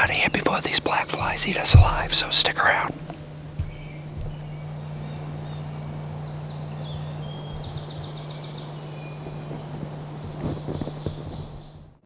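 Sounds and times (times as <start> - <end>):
songbirds singing: 0.0 - 12.0
steady low hum: 0.0 - 12.0.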